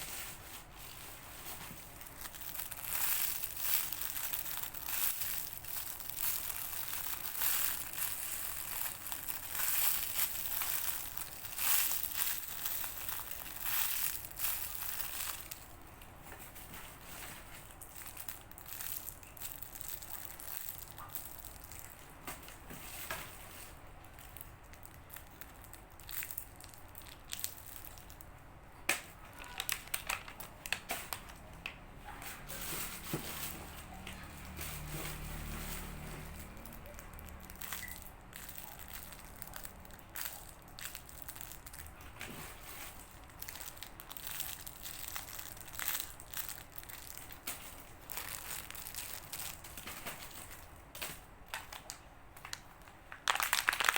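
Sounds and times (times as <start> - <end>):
soft crinkling and crackling: 0.0 - 53.9
foam toys being squeezed: 1.9 - 15.7, 36.4 - 42.0, 51.5 - 53.9.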